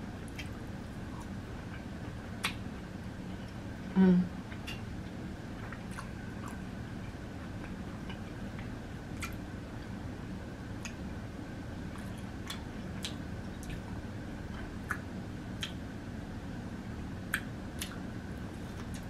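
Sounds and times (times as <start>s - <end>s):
low room hum: 0.0s - 19.0s
crunchy chewing: 5.6s - 6.7s, 17.3s - 19.0s.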